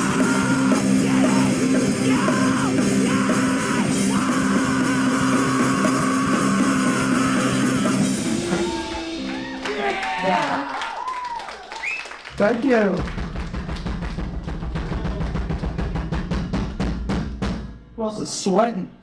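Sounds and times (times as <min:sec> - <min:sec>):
hardcore band playing live: 0:00.0 - 0:10.1
shouted vocals: 0:00.0 - 0:11.8.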